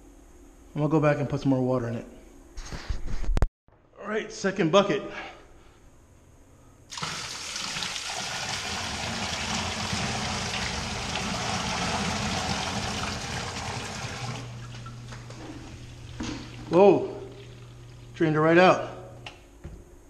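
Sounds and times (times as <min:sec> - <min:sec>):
water pouring and splashing: 0:06.9 - 0:18.2
sump pump humming: 0:06.9 - 0:19.5.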